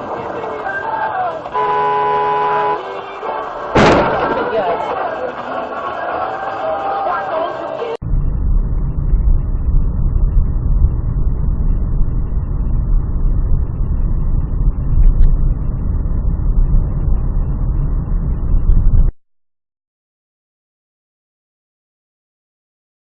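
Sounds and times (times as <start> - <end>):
car driving rumble: 8.0 - 19.2.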